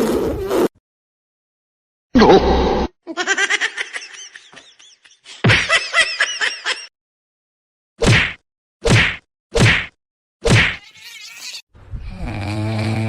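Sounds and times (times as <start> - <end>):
person laughing: 3.1 - 6.9.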